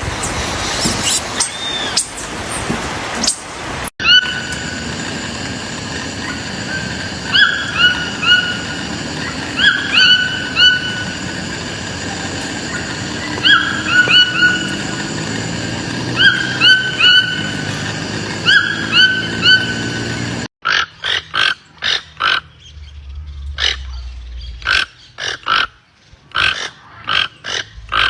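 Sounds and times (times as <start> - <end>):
steady background hiss: 0.0 - 20.4
toucan yelping calls: 4.0 - 28.0.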